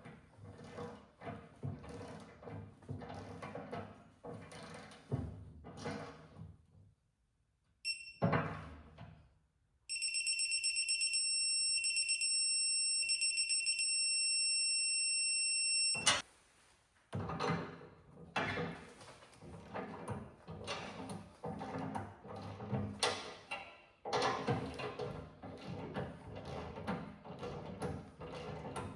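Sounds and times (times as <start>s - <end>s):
torque wrench beeping: 7.9s - 8.2s, 9.9s - 16.2s.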